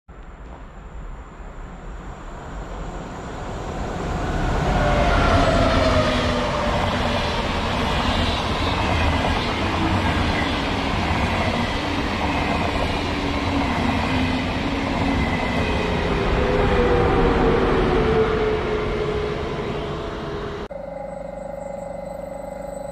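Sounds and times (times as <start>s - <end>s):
high-speed train passing: 0.2s - 21.1s
faint gliding tones: 19.8s - 22.9s.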